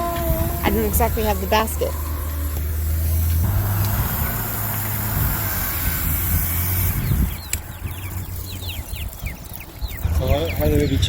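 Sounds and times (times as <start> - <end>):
baby chicks peeping: 0.0 - 4.4, 5.1 - 11.0
low rumble with hiss: 0.0 - 9.3.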